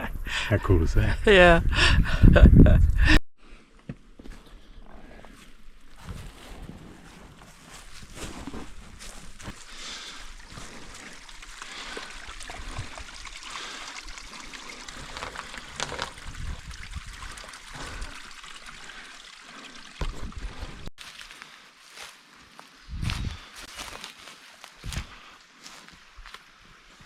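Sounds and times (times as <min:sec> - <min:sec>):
stream trickling over stones: 0:07.6 - 0:21.4.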